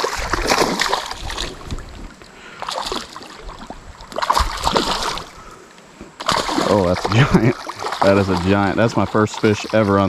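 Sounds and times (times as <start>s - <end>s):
water splashing and sloshing: 0.0s - 10.0s
wind rumble on microphone: 0.1s - 2.2s.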